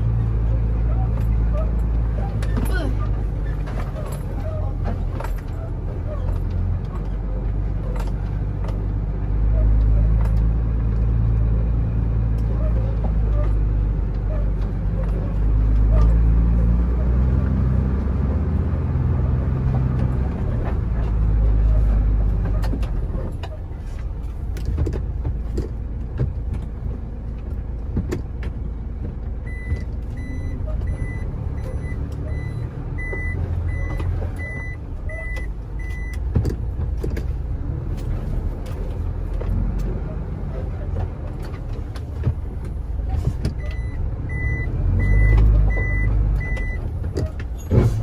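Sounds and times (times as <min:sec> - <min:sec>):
truck engine running: 0:00.0 - 0:48.0.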